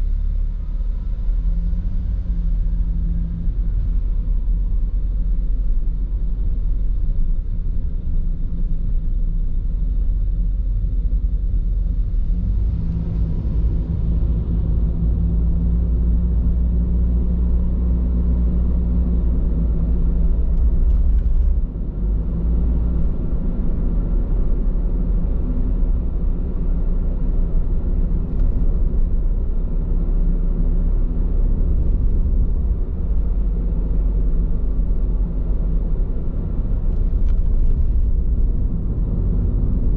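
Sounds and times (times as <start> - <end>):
car road rumble and tyre roar: 0.0 - 39.9.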